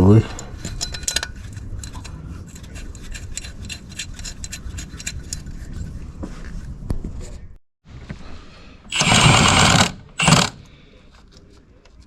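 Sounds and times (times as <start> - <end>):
metal hand tools clicking: 8.9 - 10.6.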